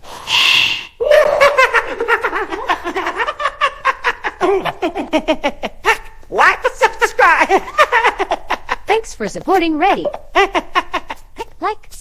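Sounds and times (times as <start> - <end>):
breathy burst: 0.0 - 1.3
rapid laughter: 1.0 - 9.0, 9.9 - 11.5.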